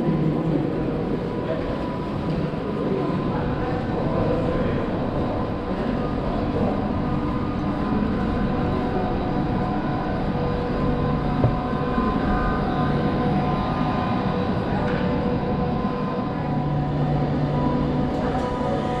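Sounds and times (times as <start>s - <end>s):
train mechanical hum: 0.0s - 19.0s.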